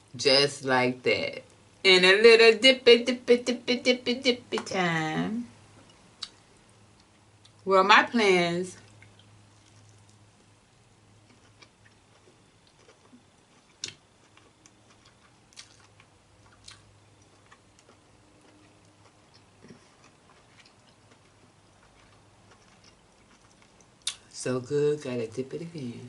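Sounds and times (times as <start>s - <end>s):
faint low hum: 0.0s - 26.0s
chewing clicks and smacks: 11.3s - 24.3s.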